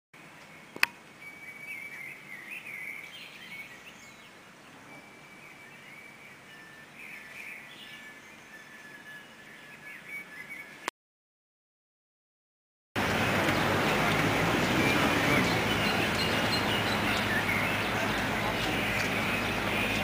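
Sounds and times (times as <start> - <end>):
birds chirping and warbling: 0.2 - 10.9, 13.0 - 20.0
faint outdoor background noise: 0.2 - 10.9, 13.0 - 20.0
sharp click: 0.8 - 1.0.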